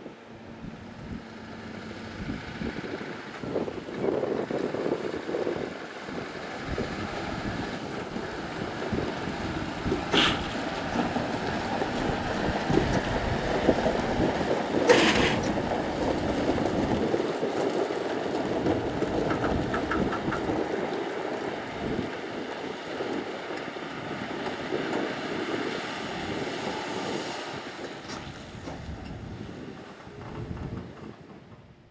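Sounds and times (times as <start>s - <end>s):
heavy diesel machinery: 0.0s - 31.9s
brief sharp noises: 10.1s - 10.6s.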